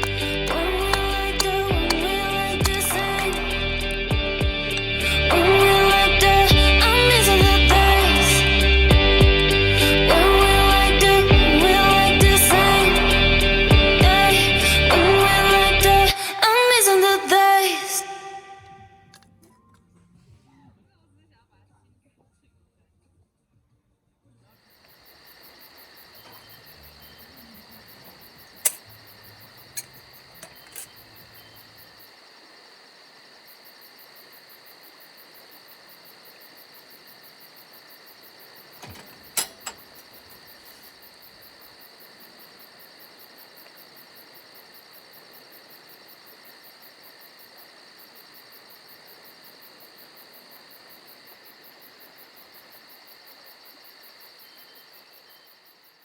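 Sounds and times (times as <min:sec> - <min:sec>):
sharp clicks or knocks: 0:00.0 - 0:04.0, 0:28.6 - 0:28.9, 0:29.7 - 0:31.0, 0:38.8 - 0:40.2
insects trilling: 0:00.0 - 0:18.0, 0:24.6 - 0:56.0.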